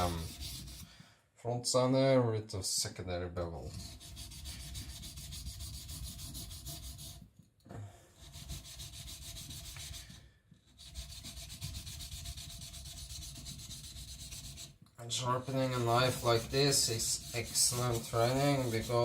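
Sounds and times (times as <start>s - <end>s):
blade grinding on whetstone: 15.4s - 19.0s.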